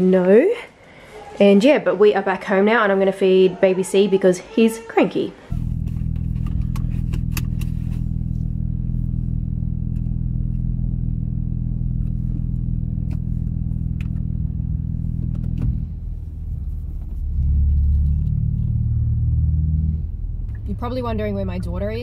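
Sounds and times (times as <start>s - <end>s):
car engine running: 5.5s - 22.0s.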